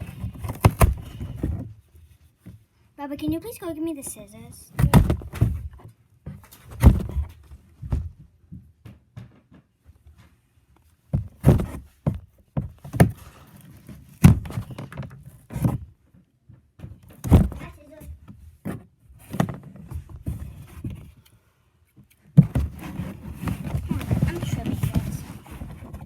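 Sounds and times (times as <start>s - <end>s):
knocks and thumps: 4.7s - 10.0s, 11.1s - 13.3s, 14.1s - 15.8s, 16.8s - 21.1s, 22.4s - 26.0s.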